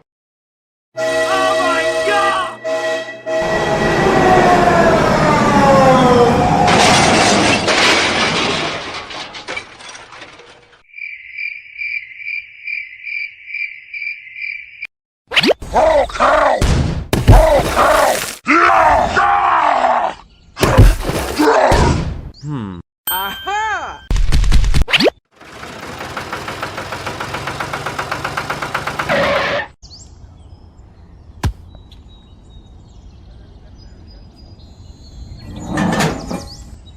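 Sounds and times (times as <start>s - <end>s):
cricket chirping: 10.8s - 14.9s
engine knocking rapidly: 25.3s - 29.1s.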